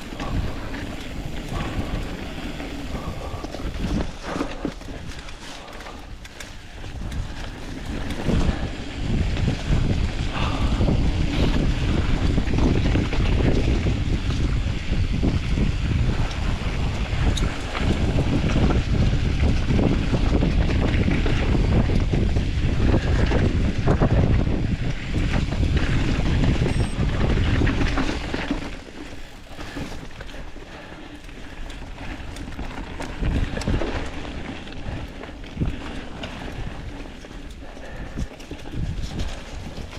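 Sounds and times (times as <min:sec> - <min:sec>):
tyre noise: 0:00.0 - 0:14.0
bike rattling over trail: 0:00.0 - 0:39.9
wind buffeting microphone: 0:00.0 - 0:39.9.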